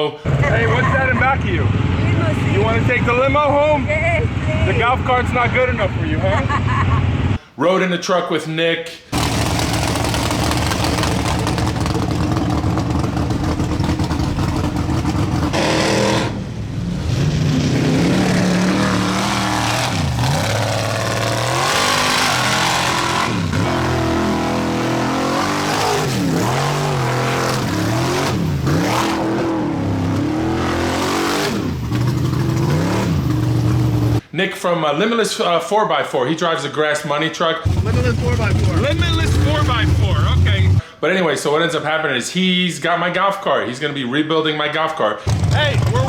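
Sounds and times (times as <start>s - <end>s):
vehicle engine revving: 9.2s - 34.2s, 37.6s - 40.8s, 45.3s - 46.0s.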